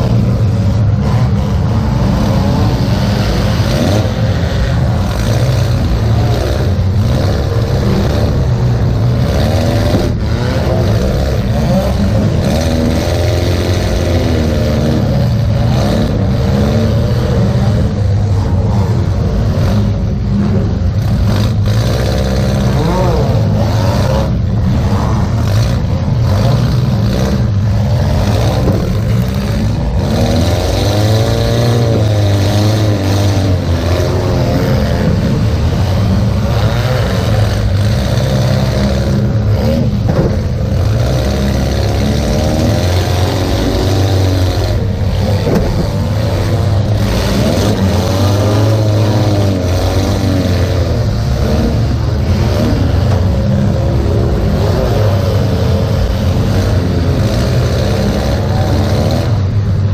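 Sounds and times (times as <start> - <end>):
car engine revving hard: 0.0 - 59.9
knocks and bangs: 40.0 - 40.6, 45.3 - 46.4.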